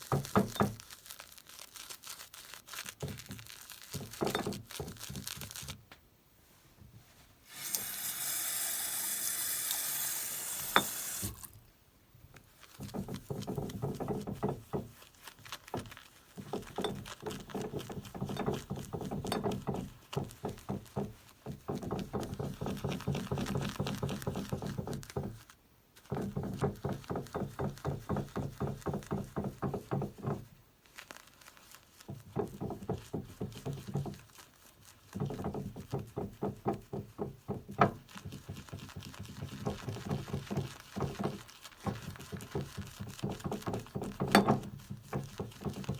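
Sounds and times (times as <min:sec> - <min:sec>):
tap water running: 0:07.5 - 0:11.6, 0:39.6 - 0:45.9.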